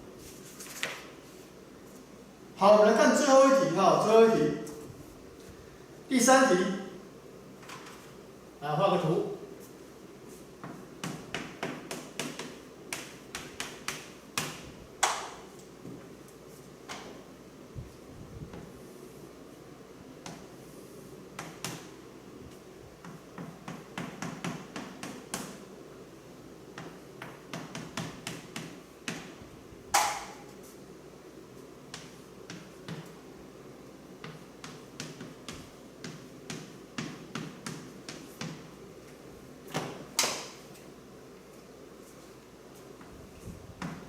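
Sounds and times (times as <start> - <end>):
pen tapping and scratching: 34.2 - 38.6.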